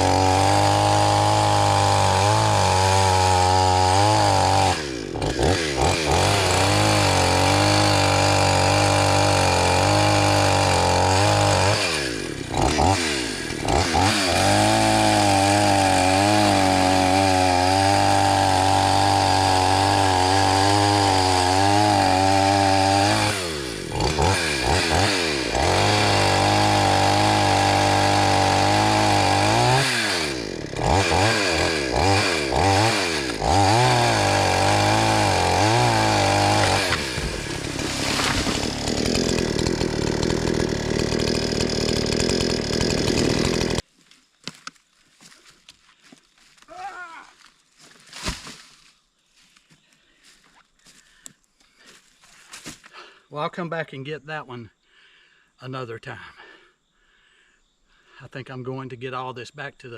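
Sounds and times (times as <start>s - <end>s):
chainsaw cutting log: 0.0s - 45.4s, 47.8s - 48.8s.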